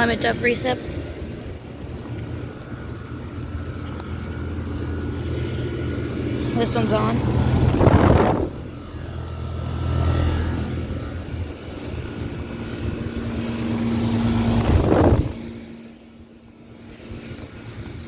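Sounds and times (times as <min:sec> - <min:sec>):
fan whoosh: 0:04.4 - 0:18.0.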